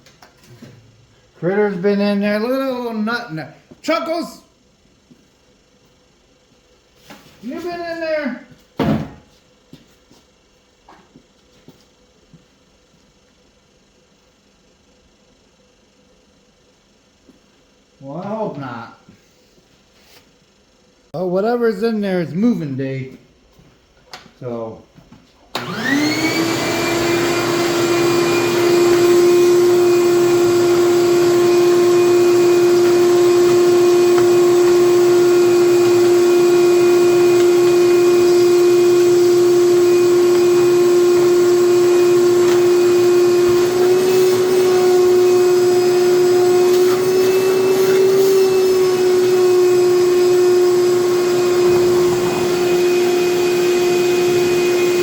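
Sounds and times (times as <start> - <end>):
shop vacuum whining: 7.0 - 10.2, 25.5 - 55.0.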